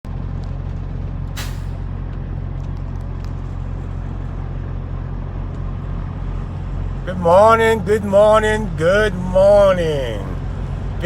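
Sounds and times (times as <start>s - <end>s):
truck diesel engine running: 0.1s - 11.0s
air brake hiss: 1.4s - 1.8s.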